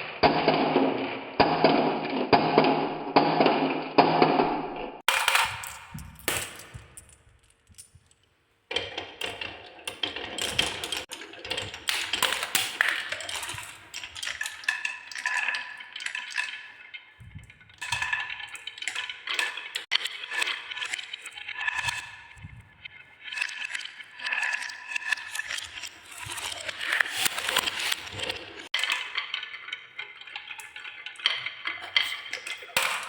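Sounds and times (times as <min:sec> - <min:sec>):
marbles clattering down wooden run: 0:05.1 - 0:17.1, 0:17.8 - 0:22.4, 0:23.3 - 0:33.0.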